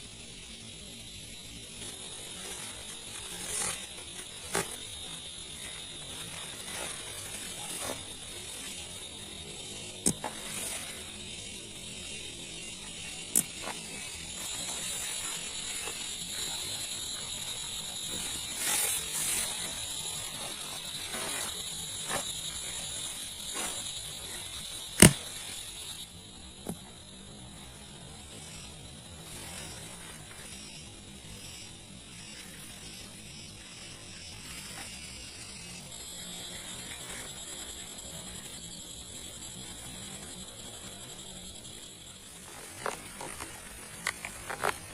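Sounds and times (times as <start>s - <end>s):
insects chirring: 0.0s - 44.9s.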